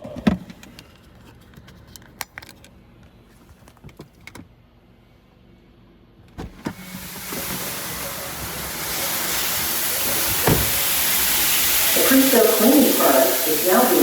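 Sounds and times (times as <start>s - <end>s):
spray hissing on a car: 6.8s - 14.0s.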